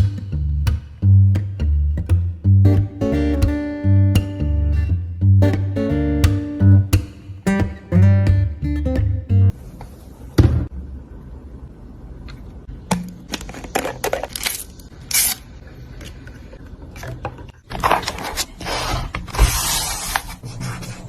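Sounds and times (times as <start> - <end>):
paper scraping and rustling: 17.7 - 21.0.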